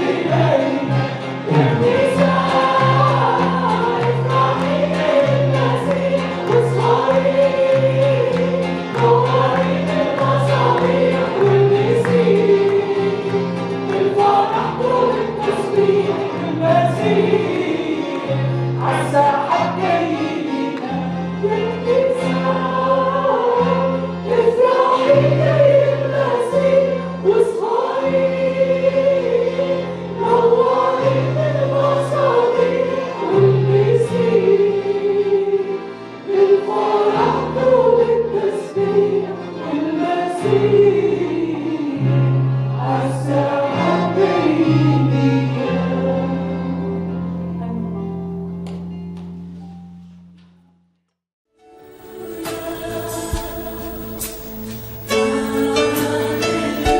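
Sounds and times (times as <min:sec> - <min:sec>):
group singing a worship song: 0:00.0 - 0:46.8, 0:51.8 - 0:56.9
keyboard: 0:00.0 - 0:50.9, 0:51.5 - 0:56.9
bass line: 0:01.4 - 0:05.5.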